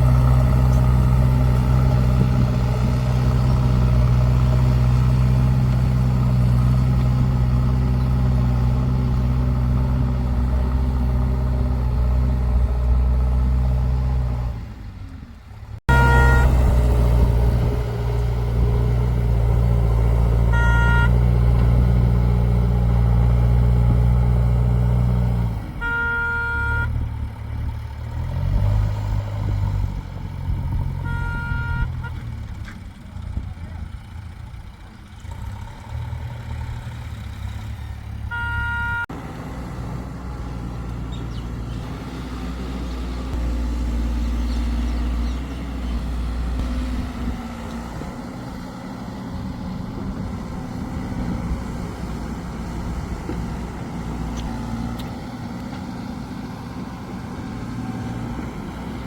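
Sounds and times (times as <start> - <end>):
heavy tractor engine running: 0.0 - 59.0
vehicle horn honking: 15.9 - 16.7, 20.5 - 21.3, 25.8 - 27.0, 31.0 - 32.2, 38.3 - 39.1.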